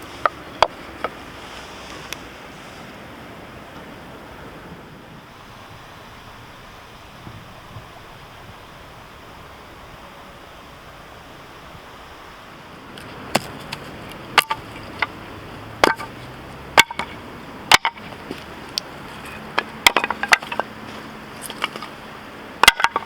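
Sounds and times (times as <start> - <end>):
hatchet chopping firewood: 13.0 - 22.0, 22.6 - 23.0.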